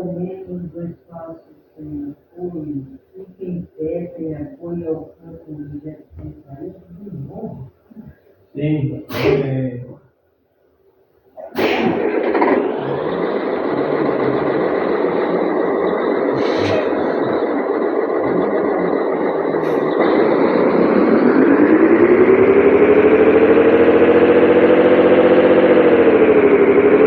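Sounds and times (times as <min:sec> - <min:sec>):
truck diesel engine running: 0:12.0 - 0:27.0.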